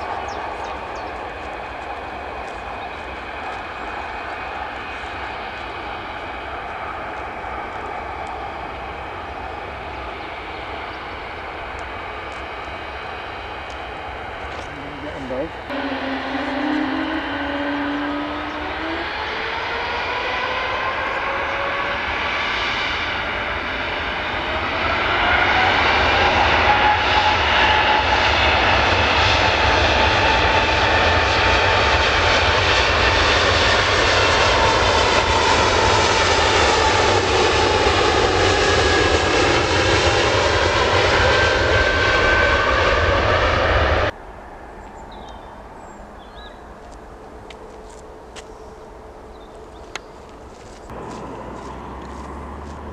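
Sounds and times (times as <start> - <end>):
aircraft engines whining: 0.0 - 52.9.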